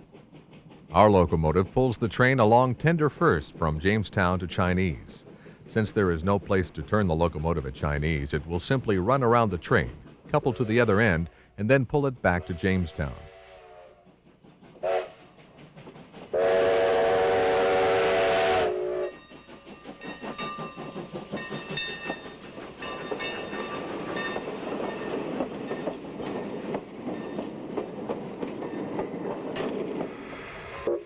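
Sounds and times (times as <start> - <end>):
train rattling: 0.0 - 31.0
steam locomotive whistle: 12.3 - 14.1, 14.8 - 15.3, 16.3 - 19.2, 30.1 - 31.0.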